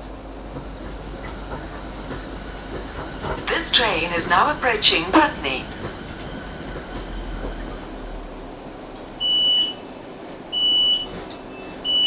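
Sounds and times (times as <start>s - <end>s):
train running rumble: 0.0s - 12.0s
door warning beeps: 9.2s - 9.8s, 10.6s - 11.2s.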